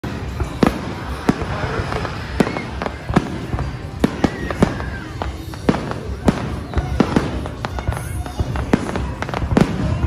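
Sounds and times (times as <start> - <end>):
steady wash of noise: 0.0 - 6.4.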